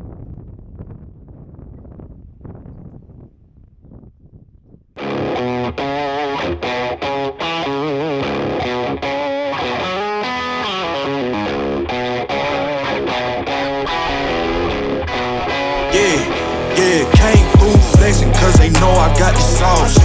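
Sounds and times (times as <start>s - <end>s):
faint wind noise: 0.0s - 5.0s, 12.2s - 17.0s
distorted electric guitar: 5.0s - 20.0s.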